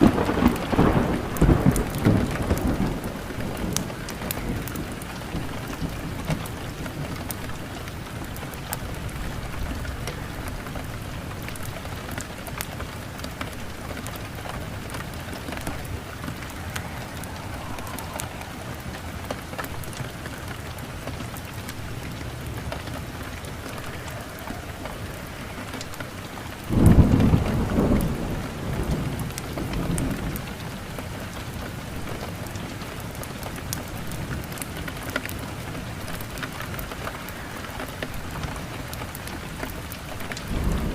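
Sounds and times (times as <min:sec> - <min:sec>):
steady rain: 0:00.0 - 0:40.9
thunder rumbling: 0:00.0 - 0:40.9.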